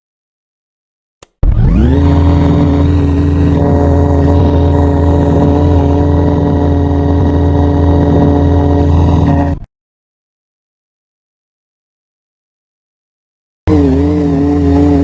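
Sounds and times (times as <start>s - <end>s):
motor drone spinning up: 1.3s - 9.7s, 13.7s - 15.0s.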